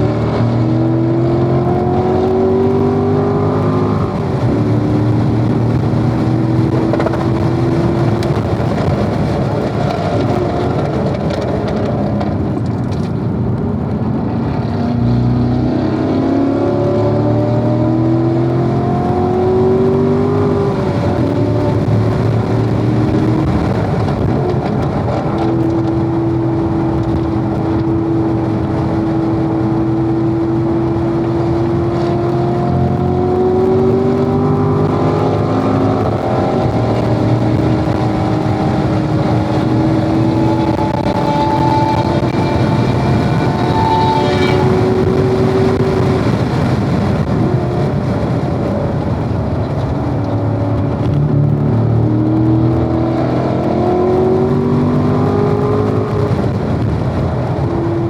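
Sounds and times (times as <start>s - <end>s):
racing car engine pulling hard: 0.0s - 58.0s.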